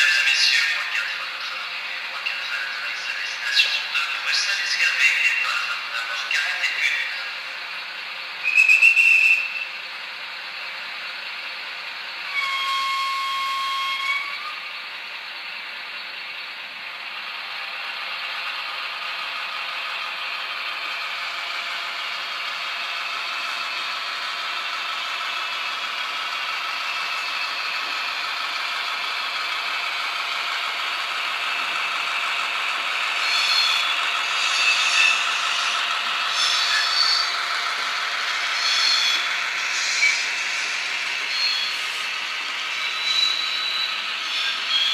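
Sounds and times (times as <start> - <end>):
locomotive running sound: 0.0 - 44.9
model locomotive whistle: 8.4 - 9.8, 12.3 - 14.7, 33.2 - 35.7, 36.3 - 37.4.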